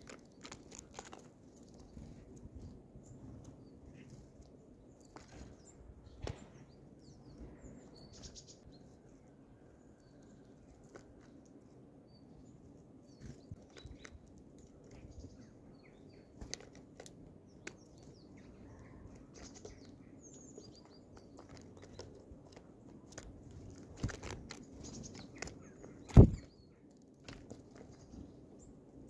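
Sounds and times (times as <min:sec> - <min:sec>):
birds pecking on wooden tray: 0:00.0 - 0:02.7, 0:10.2 - 0:11.7, 0:15.9 - 0:28.2
songbirds chirping: 0:00.0 - 0:29.0.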